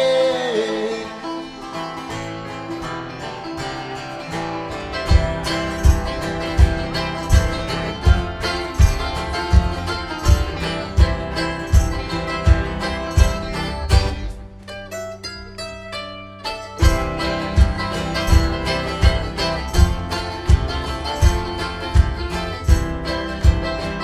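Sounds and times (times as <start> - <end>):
plucked strings: 0.0 - 24.0
strummed acoustic guitar: 0.0 - 24.0
steady low drum beat: 5.0 - 14.5, 16.8 - 24.0.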